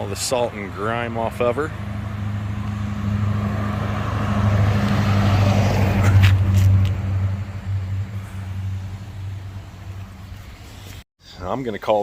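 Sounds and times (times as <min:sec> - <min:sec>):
engine running at low revs: 0:00.0 - 0:10.5.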